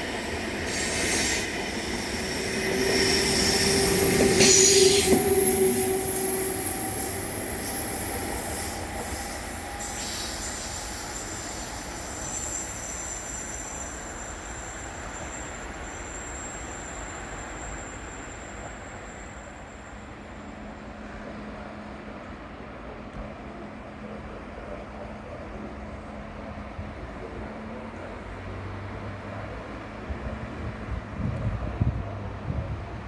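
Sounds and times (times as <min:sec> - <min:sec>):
train wheels squealing: 0:00.0 - 0:21.3
train rolling noise: 0:00.0 - 0:33.0.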